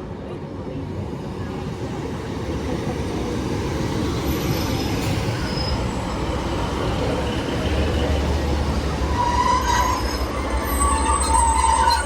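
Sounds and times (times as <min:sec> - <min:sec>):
train engines and wheels rumbling: 0:00.0 - 0:12.0
high squeal: 0:04.5 - 0:06.1, 0:09.0 - 0:12.0.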